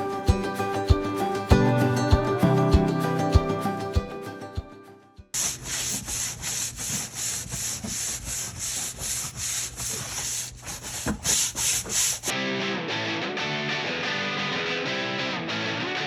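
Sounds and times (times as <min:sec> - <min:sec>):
stiff brush scrubbing wooden planks: 0:05.4 - 0:12.3.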